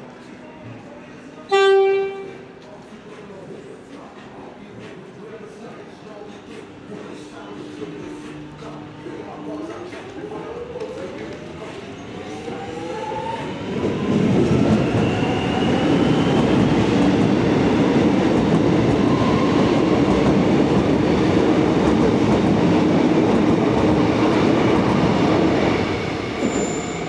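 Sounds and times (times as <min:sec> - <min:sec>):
train rumbling on rails: 0:06.4 - 0:27.0.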